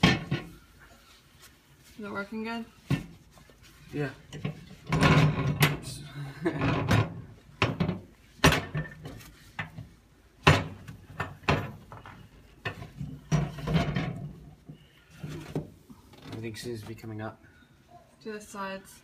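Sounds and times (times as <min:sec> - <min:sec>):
knocks and clunks: 0:00.0 - 0:00.6, 0:04.3 - 0:16.4
cloth rubbing: 0:00.5 - 0:04.8.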